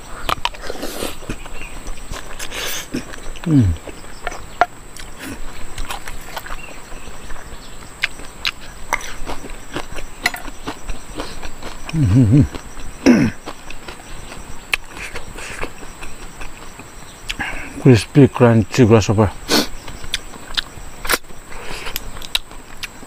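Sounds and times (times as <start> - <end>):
crunchy chewing: 0.0 - 17.9, 19.4 - 23.0
insects chirping: 0.0 - 23.0
person humming mm: 2.5 - 3.9, 11.9 - 13.4.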